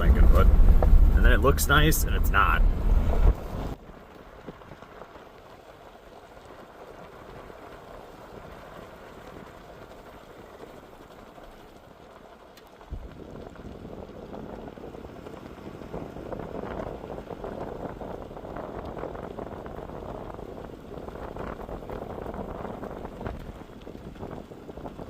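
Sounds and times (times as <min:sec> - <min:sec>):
truck rumbling on washboard: 0:00.0 - 0:03.8
tyre and road noise on gravel: 0:00.0 - 0:25.0
low thump: 0:00.1 - 0:01.2.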